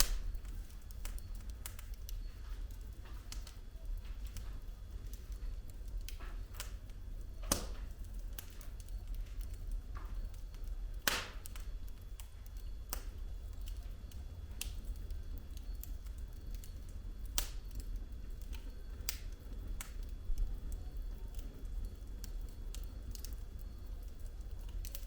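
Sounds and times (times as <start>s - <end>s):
logs popping and snapping: 0.0s - 2.2s, 7.4s - 7.8s, 11.0s - 11.7s
wood fire crackling: 0.0s - 25.0s.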